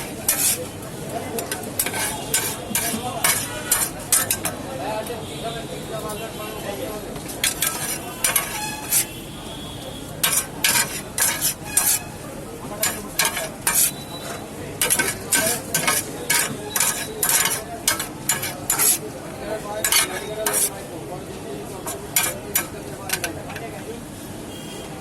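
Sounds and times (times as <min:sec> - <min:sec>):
metal spatula scraping pan: 0:00.0 - 0:00.8, 0:01.4 - 0:04.6, 0:07.4 - 0:09.2, 0:10.2 - 0:20.9, 0:21.8 - 0:23.6.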